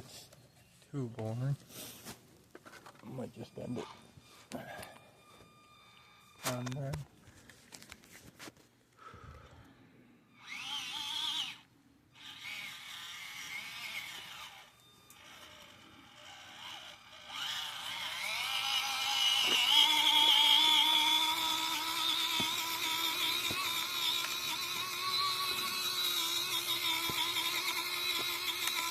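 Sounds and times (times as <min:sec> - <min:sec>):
electric motor and gearbox whining: 0:02.8 - 0:07.1, 0:10.3 - 0:28.9.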